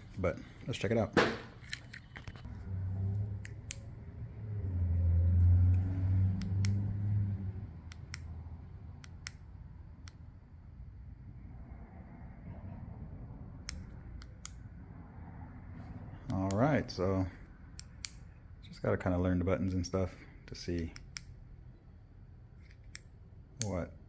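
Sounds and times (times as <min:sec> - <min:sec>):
low rumble: 0:10.6 - 0:16.3.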